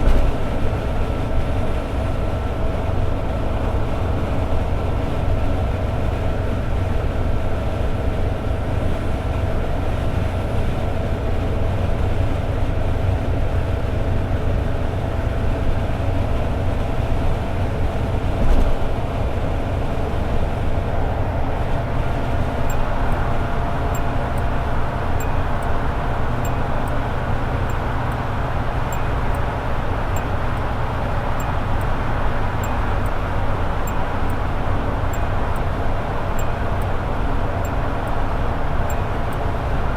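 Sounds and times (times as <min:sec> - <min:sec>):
car engine and road noise: 0:00.0 - 0:39.9
steady tone: 0:22.3 - 0:35.8.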